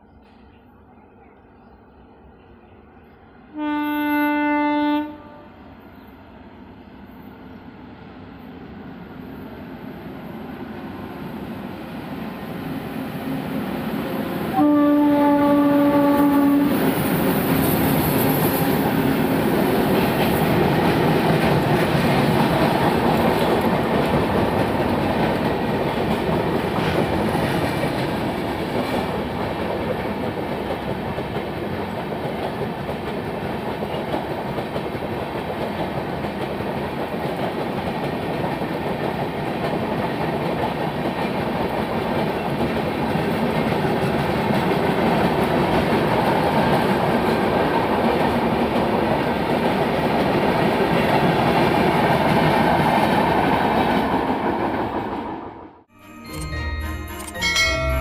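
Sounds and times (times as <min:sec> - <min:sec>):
locomotive horn blast: 0:03.5 - 0:05.6, 0:14.5 - 0:16.8
train wheels clattering on rails: 0:15.9 - 0:54.4.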